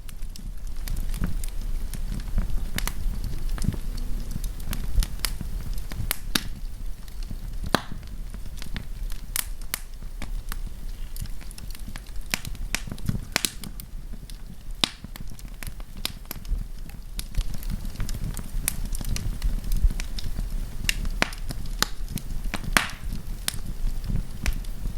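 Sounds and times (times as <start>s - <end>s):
campfire crackling and popping: 0.0s - 24.9s
low rumble of flame: 0.0s - 24.9s.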